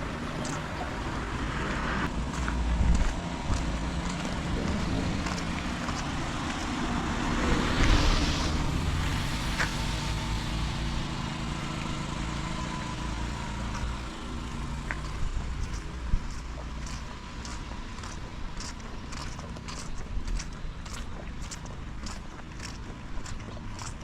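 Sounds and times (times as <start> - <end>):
car passing on wet road: 0.0 - 19.9
rain hiss: 5.4 - 14.8.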